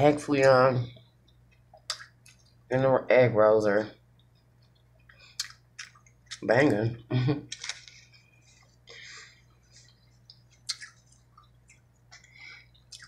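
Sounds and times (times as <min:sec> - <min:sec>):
wet chewing clicks and smacks: 0:01.0 - 0:02.7, 0:04.1 - 0:06.8, 0:09.8 - 0:13.0.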